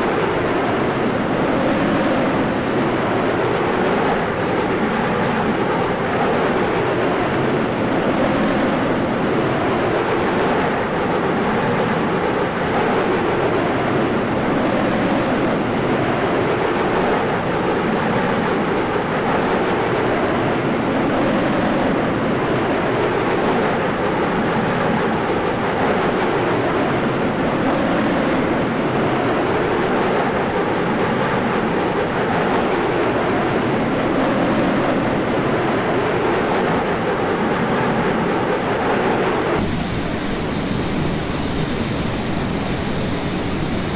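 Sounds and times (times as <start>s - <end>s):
aircraft engine and airstream roar: 0.0s - 43.9s
wind buffeting microphone: 19.9s - 43.9s.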